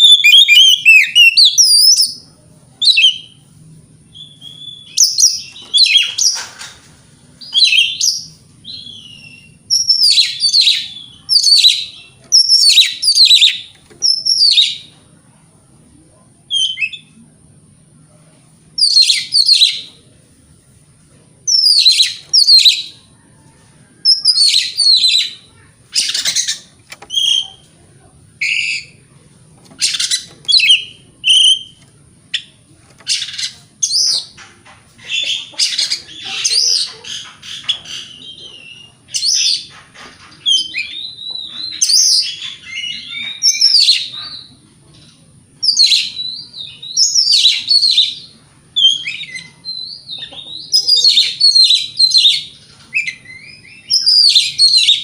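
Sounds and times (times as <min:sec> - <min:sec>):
bird singing whistled phrases: 0:00.0 - 0:02.2, 0:02.8 - 0:03.4, 0:04.1 - 0:06.2, 0:07.5 - 0:14.9, 0:16.5 - 0:17.1, 0:18.8 - 0:19.9, 0:21.5 - 0:22.9, 0:26.0 - 0:27.6, 0:29.8 - 0:31.8, 0:40.5 - 0:44.4, 0:45.6 - 0:55.0.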